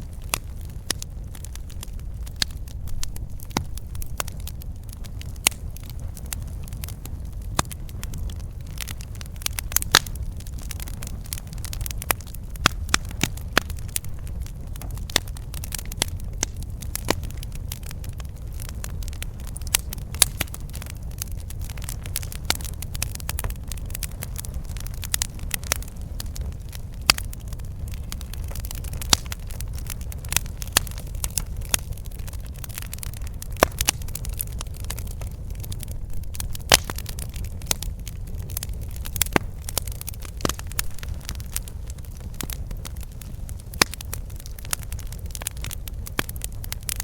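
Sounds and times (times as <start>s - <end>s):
campfire wood crackling: 0.0s - 47.0s.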